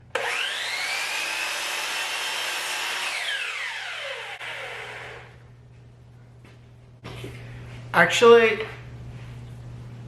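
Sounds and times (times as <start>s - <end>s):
chop saw motor whine: 0.1s - 5.3s.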